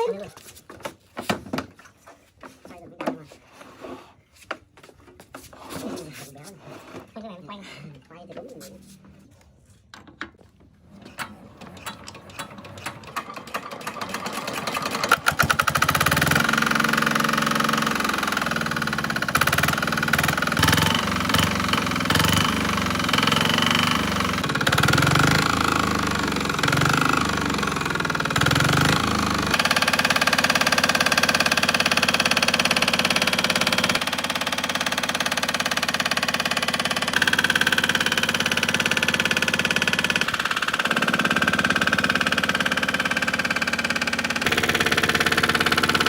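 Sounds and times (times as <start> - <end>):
diesel engine starting and knocking: 11.1 - 46.0.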